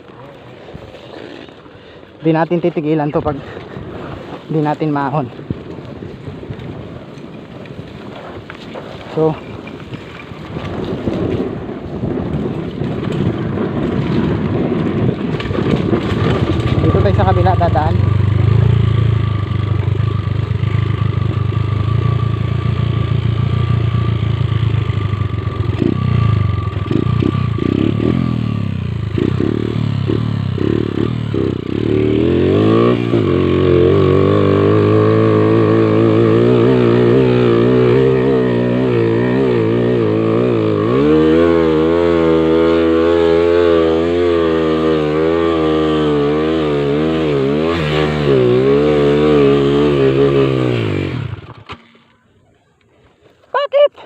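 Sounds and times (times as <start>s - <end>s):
motorcycle engine revving: 9.1s - 52.2s.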